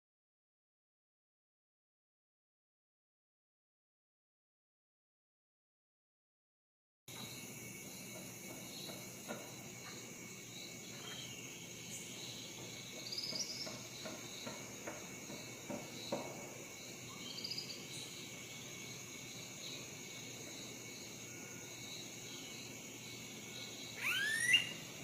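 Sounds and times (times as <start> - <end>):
insects trilling: 7.1 - 25.0
bird chirping: 10.9 - 14.6, 17.1 - 18.2, 23.9 - 24.9.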